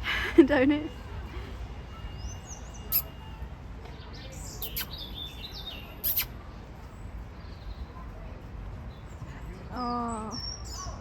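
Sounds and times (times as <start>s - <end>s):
birds chirping: 1.9s - 8.1s.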